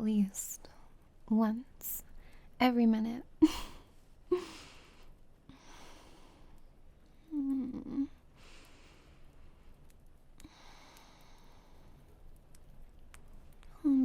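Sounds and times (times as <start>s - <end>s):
faint wind and rain: 0.0s - 14.0s
woman breathing softly: 2.1s - 2.6s, 4.3s - 7.4s, 8.3s - 9.8s, 10.4s - 12.2s
woman humming: 7.3s - 8.2s, 13.7s - 14.0s.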